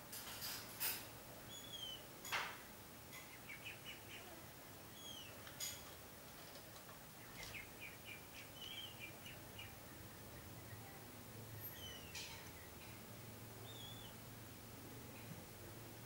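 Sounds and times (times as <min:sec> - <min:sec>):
faint bird calls: 0:01.5 - 0:02.1, 0:03.2 - 0:05.4, 0:07.2 - 0:12.8, 0:13.6 - 0:14.2.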